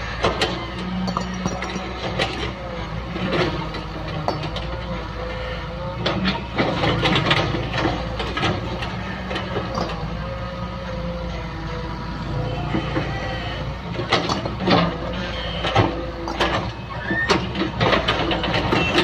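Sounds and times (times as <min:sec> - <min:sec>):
excavator diesel engine running: 0:00.0 - 0:19.0
clanks and scrapes: 0:06.1 - 0:10.2, 0:14.0 - 0:19.0.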